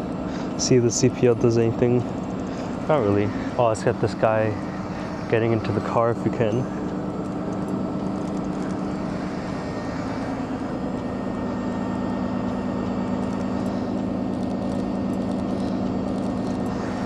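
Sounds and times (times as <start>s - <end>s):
city street noise: 0.0s - 17.0s
vehicle engine idling: 0.0s - 17.0s.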